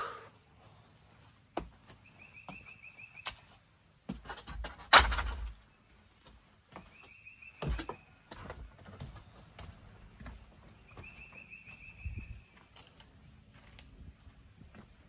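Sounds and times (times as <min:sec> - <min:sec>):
bird trilling: 0:00.0 - 0:00.4
footsteps on ground: 0:06.2 - 0:15.0.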